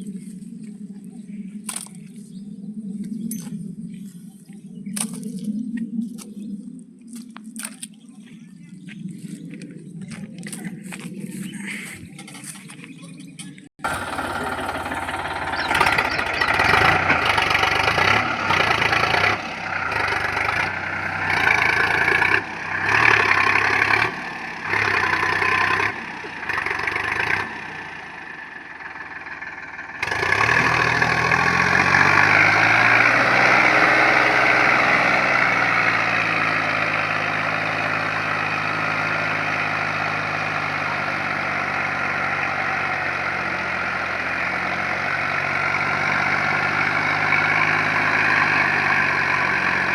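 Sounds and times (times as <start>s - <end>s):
tractor diesel engine running: 13.4s - 49.9s.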